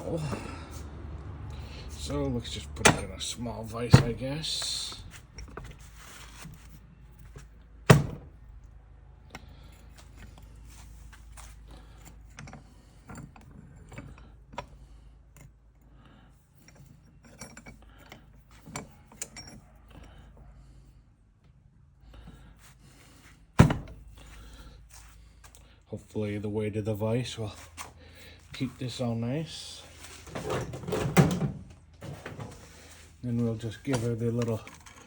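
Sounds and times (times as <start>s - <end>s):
metal clicks and rattles: 33.9s - 35.0s.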